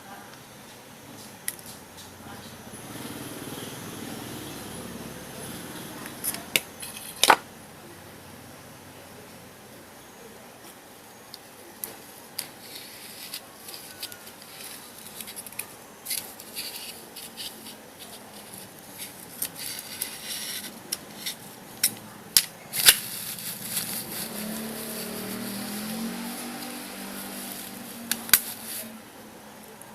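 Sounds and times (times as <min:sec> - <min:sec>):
scraping or cutting sounds: 0:12.4 - 0:22.0, 0:22.7 - 0:29.0
hand tools clicking and tapping: 0:13.3 - 0:28.8.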